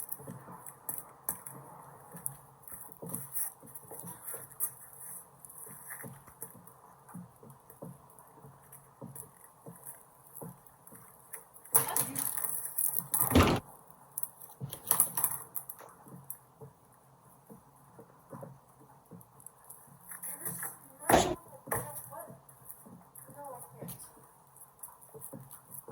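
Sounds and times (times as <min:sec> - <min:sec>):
objects clattering: 0:13.2 - 0:13.6, 0:21.1 - 0:21.4
heavy knock: 0:21.1 - 0:21.4.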